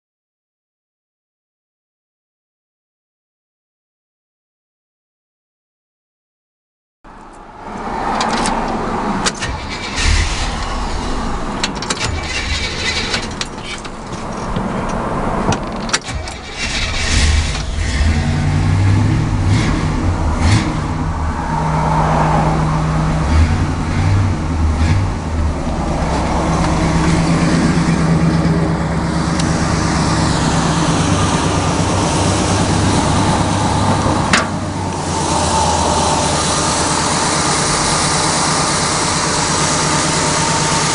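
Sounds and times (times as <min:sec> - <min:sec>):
car engine starting and revving: 0:07.6 - 0:40.9.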